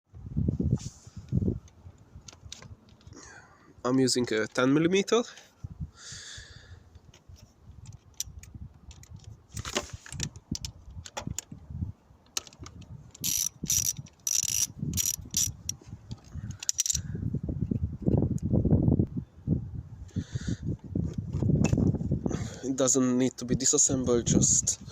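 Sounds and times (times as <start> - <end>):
sharp metallic clicks: 12.3 - 17.0
ratchet wrench clicking: 13.1 - 15.8, 16.5 - 17.1.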